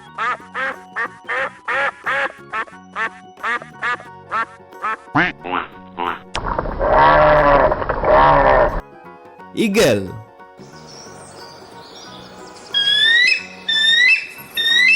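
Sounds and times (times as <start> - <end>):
background music: 0.0 - 7.8, 8.4 - 14.9
duck quacking: 0.2 - 6.3
long animal call: 6.8 - 8.8.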